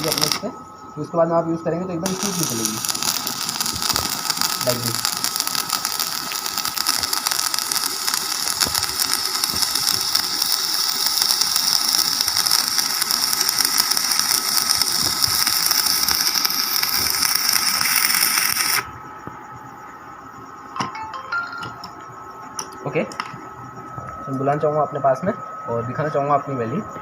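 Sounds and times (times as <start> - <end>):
welding arc crackling and sizzling: 0.0 - 0.5, 2.0 - 18.9.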